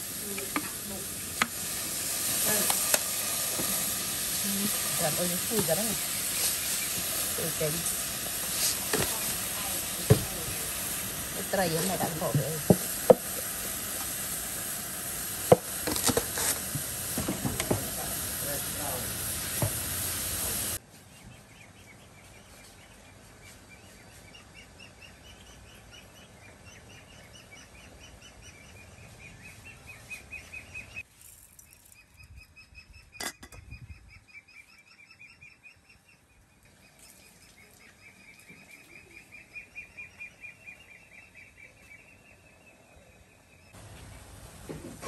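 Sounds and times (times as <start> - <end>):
loud steady hiss: 0.0 - 20.8, 43.7 - 45.0.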